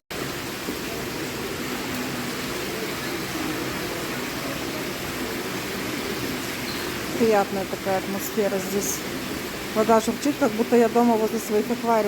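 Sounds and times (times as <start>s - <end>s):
indoor fountain water splashing: 0.1s - 12.0s.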